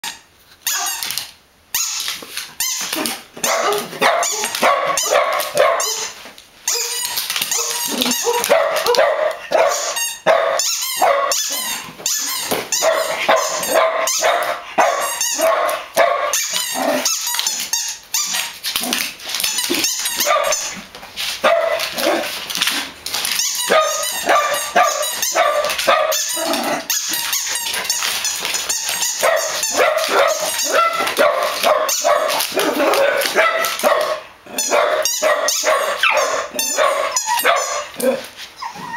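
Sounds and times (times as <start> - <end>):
dogs barking: 3.4 - 6.2, 7.5 - 11.6, 12.7 - 17.1, 20.2 - 20.8, 21.4 - 22.4, 23.7 - 26.7, 29.0 - 38.3.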